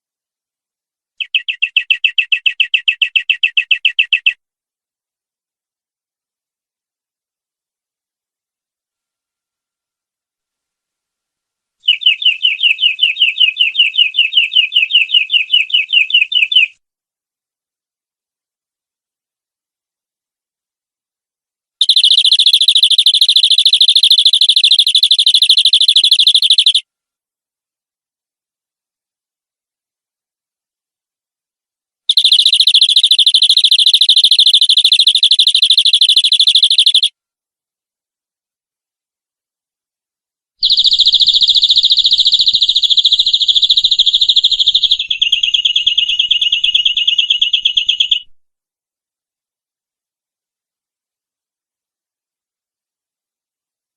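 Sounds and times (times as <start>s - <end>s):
canary singing a trill: 1.2s - 4.4s, 11.8s - 16.8s, 21.8s - 26.8s, 32.1s - 37.1s, 40.6s - 48.4s.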